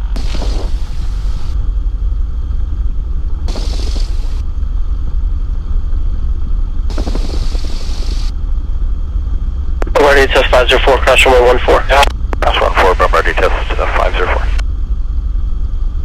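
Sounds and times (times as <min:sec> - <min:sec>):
aircraft engine idling: 0:00.0 - 0:14.6.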